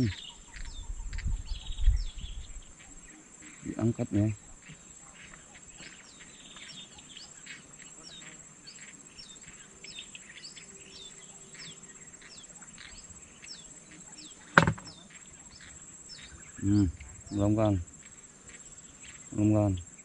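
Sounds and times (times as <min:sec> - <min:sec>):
birds chirping: 0:00.0 - 0:20.0
insect drone: 0:00.0 - 0:20.0
sharp knock: 0:14.6 - 0:14.9.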